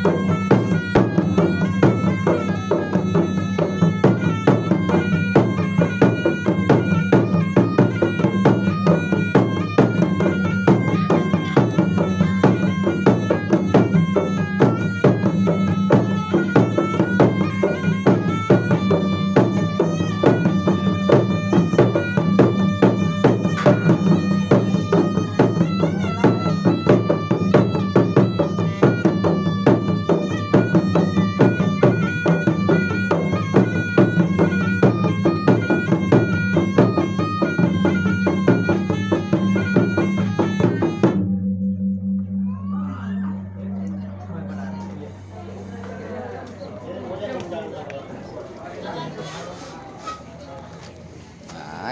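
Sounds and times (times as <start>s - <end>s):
drums beating quick strokes: 0.0s - 41.2s, 48.9s - 50.5s
wind instrument melody: 0.0s - 46.4s.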